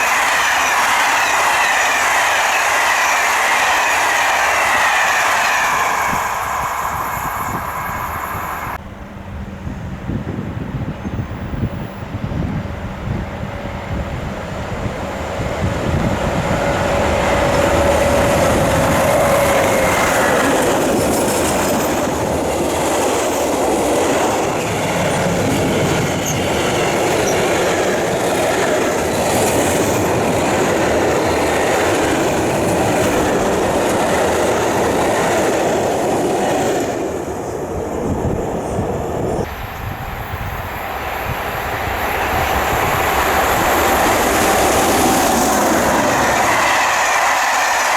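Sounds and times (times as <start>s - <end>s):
train wheels clattering on rails: 12.4s - 39.6s, 40.6s - 47.9s.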